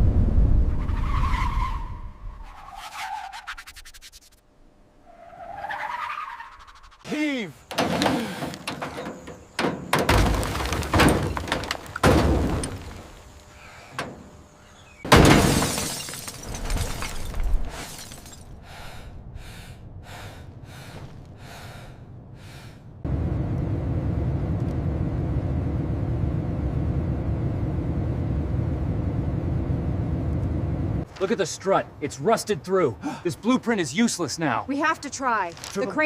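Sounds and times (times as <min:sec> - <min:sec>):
low rumble: 0:00.0 - 0:01.0
heavy crashing impacts: 0:07.8 - 0:13.2, 0:15.1 - 0:18.5.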